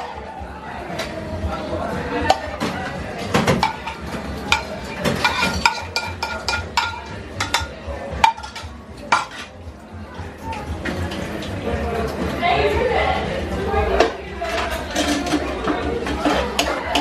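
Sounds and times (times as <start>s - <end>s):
metal utensils clinking on dishes: 2.2s - 12.3s, 14.0s - 17.0s.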